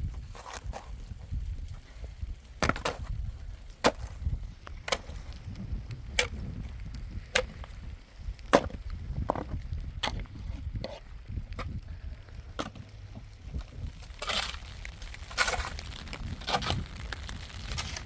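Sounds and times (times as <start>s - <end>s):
axe chopping wood: 2.6s - 3.1s, 8.5s - 8.8s.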